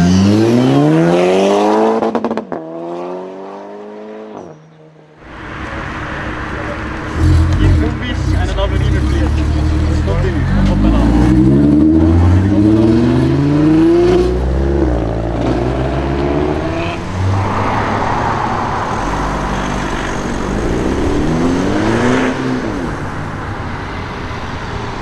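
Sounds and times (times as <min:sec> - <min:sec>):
car engine accelerating hard: 0:06.3 - 0:23.2.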